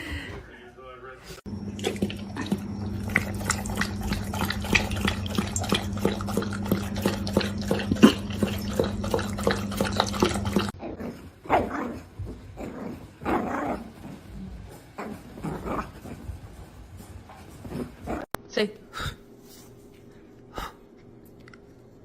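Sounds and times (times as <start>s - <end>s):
dog vocalising: 1.8s - 10.8s.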